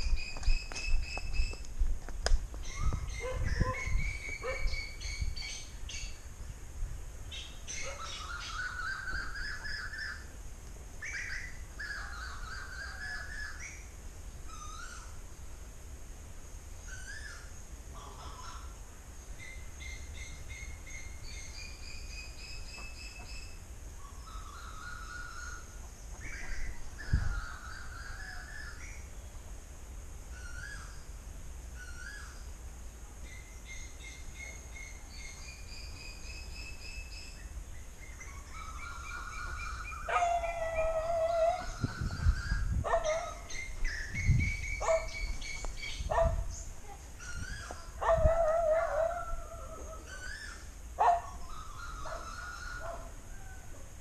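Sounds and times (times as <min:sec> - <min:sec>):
birds whistling: 0:02.6 - 0:06.2, 0:07.3 - 0:10.3, 0:11.0 - 0:13.9, 0:14.5 - 0:15.2, 0:16.8 - 0:17.6, 0:19.4 - 0:29.2, 0:30.3 - 0:31.2, 0:31.8 - 0:32.5, 0:33.2 - 0:53.1
wavering bird cries: 0:07.3 - 0:10.4, 0:11.0 - 0:15.2, 0:16.8 - 0:29.2, 0:30.3 - 0:32.5, 0:33.2 - 0:54.0.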